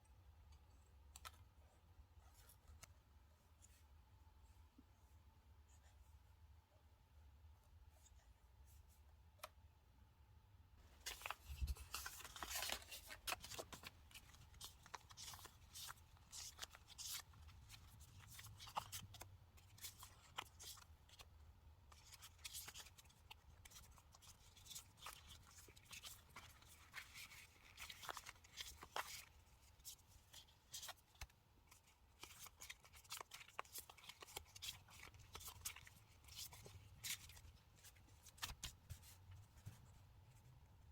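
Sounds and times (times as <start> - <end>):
paper and stickers rustling: 10.8 - 40.0.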